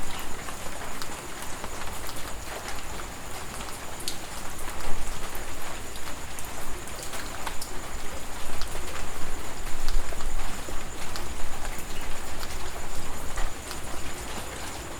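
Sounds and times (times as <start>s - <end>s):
heavy rain: 0.0s - 14.9s
raindrops striking close by: 0.0s - 14.9s.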